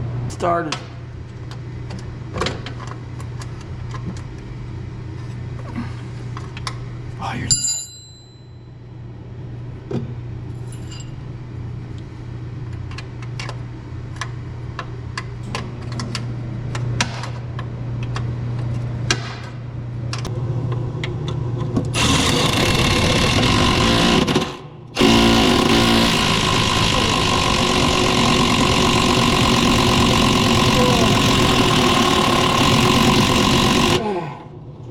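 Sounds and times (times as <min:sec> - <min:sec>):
steam pressure washer humming: 0:25.0 - 0:34.0.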